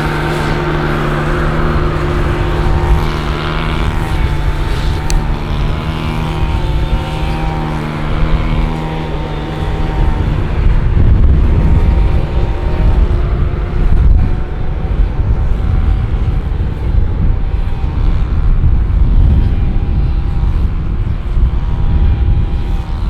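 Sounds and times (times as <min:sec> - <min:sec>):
jet engines rumbling: 0:00.0 - 0:13.6
thin whining tone: 0:00.0 - 0:18.3.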